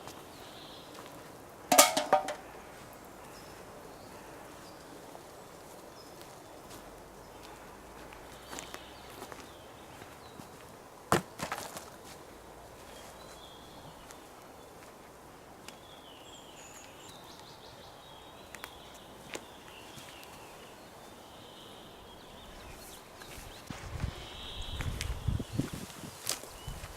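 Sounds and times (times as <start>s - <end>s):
faint birdsong: 0.0s - 11.1s, 11.9s - 26.9s
outdoor background noise: 0.0s - 26.9s
sharp knock: 1.7s - 2.4s.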